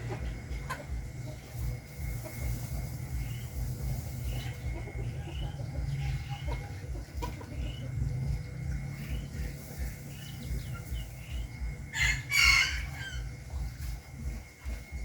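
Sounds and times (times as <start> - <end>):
low rhythmic pulsing: 0.0 - 15.0
soft bird chirps: 1.2 - 11.8
loud harsh bird call: 12.0 - 13.2.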